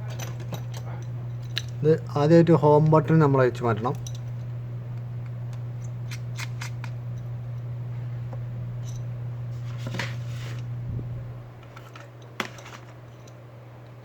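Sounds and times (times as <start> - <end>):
steady low hum: 0.0 - 14.0
small repair tools clicking: 0.2 - 1.8.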